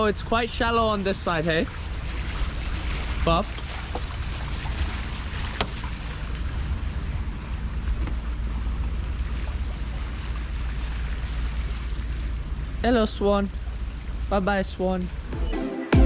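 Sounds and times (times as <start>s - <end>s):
hiss of wind and water: 0.0s - 12.8s
boat engine rumble: 0.0s - 15.4s.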